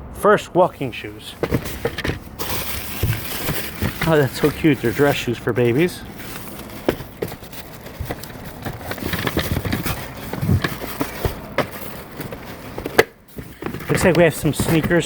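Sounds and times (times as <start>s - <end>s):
paper and cardboard rustling: 1.3s - 15.0s
taps and knocks on boxes: 6.8s - 15.0s.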